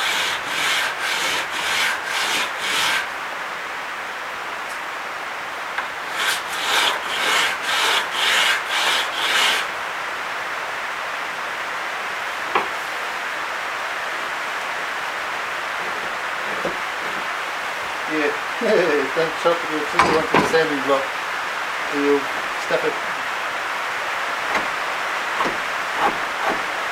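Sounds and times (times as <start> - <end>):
wood rasping on sandpaper: 0.0 - 3.1, 6.1 - 9.7, 15.8 - 17.4, 22.0 - 23.1, 25.3 - 26.8.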